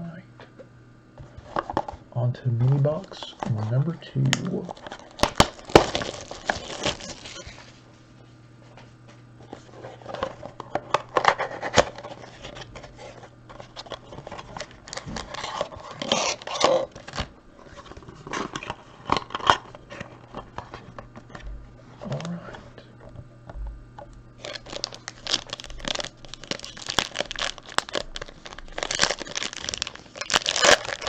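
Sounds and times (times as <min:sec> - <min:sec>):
wrapper and cardboard tearing: 0:04.6 - 0:07.7, 0:09.5 - 0:21.0, 0:24.4 - 0:31.0.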